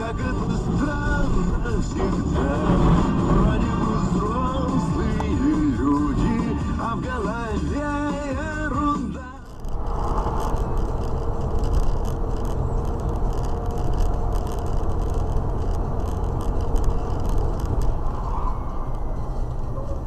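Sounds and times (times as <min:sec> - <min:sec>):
car road and engine rumble: 0:00.0 - 0:20.0
light rattles and clicks: 0:09.2 - 0:18.2.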